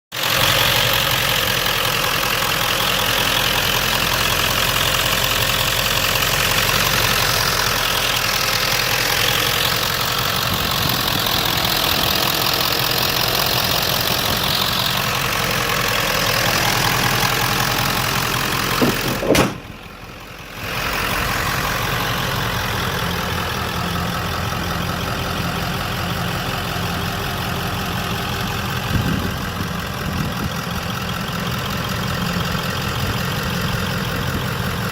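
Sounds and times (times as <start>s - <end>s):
diesel engine idling: 0.1s - 34.9s
sharp knock: 18.8s - 19.7s.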